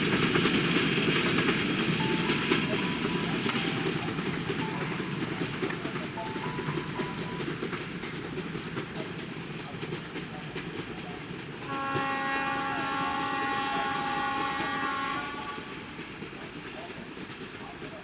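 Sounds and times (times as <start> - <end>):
train rumble and wheel clatter: 0.0 - 18.0
train air horn blast: 11.6 - 15.9.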